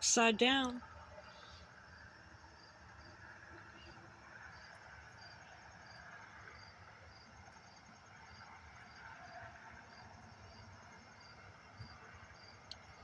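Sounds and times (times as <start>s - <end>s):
insect chirping: 0.9s - 9.1s.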